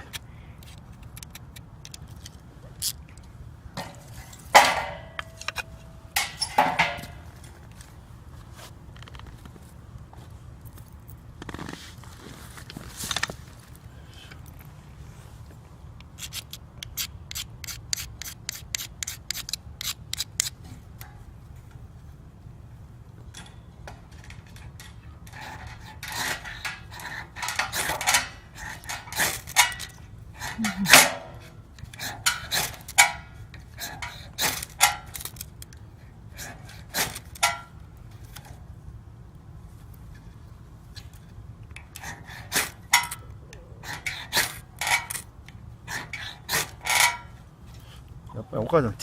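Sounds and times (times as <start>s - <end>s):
fire starter rod scraping: 3.8s - 7.9s, 24.1s - 35.8s, 41.8s - 45.3s, 45.9s - 48.0s.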